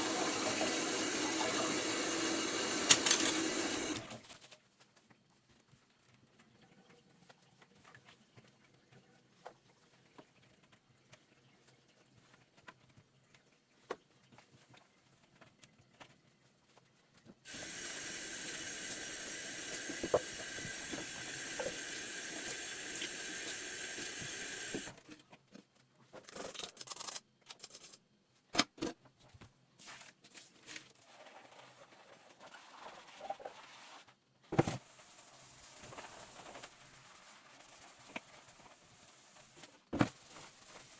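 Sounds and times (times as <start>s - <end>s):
tap water running into sink: 0.0s - 4.2s, 17.5s - 25.0s
dishes clattering: 2.8s - 3.9s.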